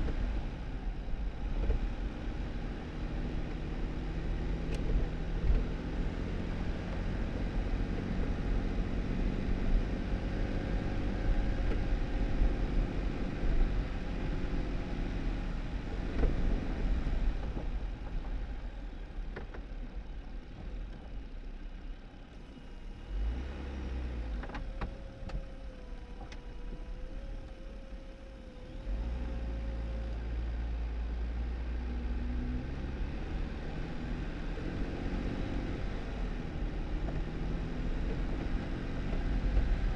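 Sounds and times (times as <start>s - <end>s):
car engine running: 0.0s - 39.9s
tyre and road noise: 23.1s - 39.9s.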